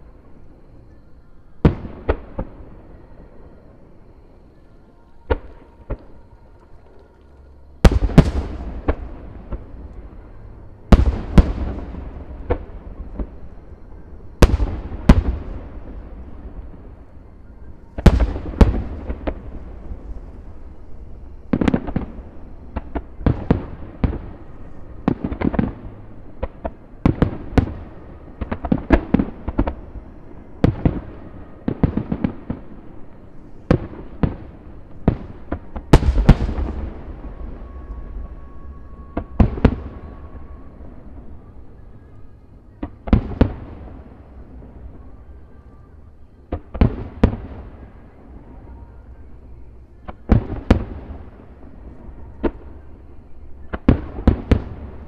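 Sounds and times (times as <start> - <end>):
firework cracks and bangs: 7.8 - 9.9, 18.0 - 20.2, 33.7 - 37.4.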